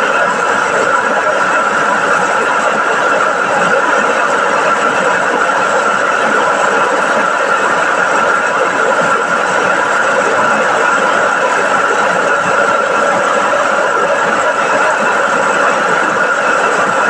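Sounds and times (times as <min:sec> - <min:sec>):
rice milling machine whirring: 0:00.0 - 0:17.0.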